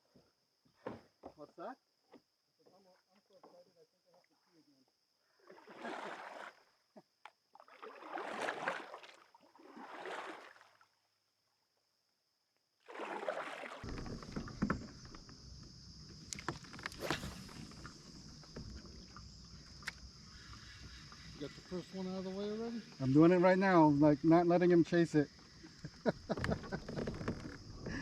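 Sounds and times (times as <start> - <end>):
water and hull noise: 5.3 - 6.8, 7.4 - 11.0, 12.8 - 28.0
paddle strokes swishing through water: 5.4 - 6.6, 7.6 - 10.8, 12.8 - 15.0.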